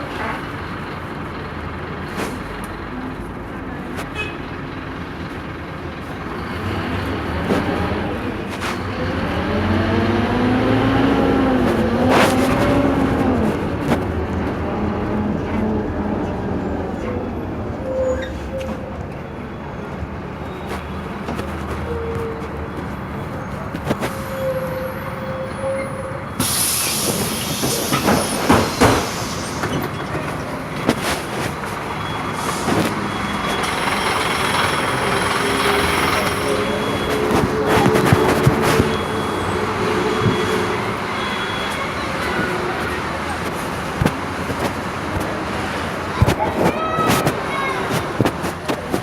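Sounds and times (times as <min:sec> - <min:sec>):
bus engine under load: 0:00.0 - 0:49.0
compressed air hiss: 0:26.4 - 0:29.6.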